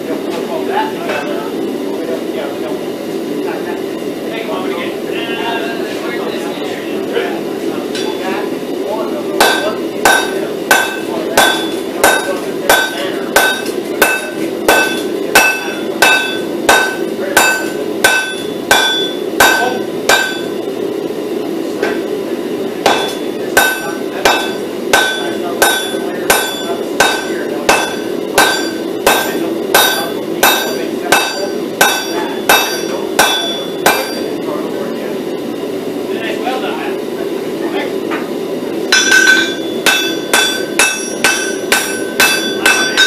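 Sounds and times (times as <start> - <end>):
hammer blows on anvil: 9.4 - 20.6, 22.8 - 34.4, 38.9 - 43.0.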